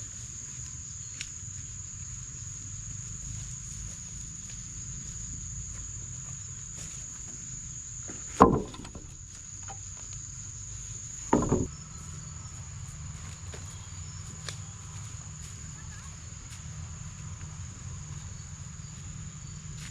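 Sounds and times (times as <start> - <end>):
crickets droning: 0.0 - 19.9
loud knocks: 8.3 - 9.2, 11.3 - 11.7.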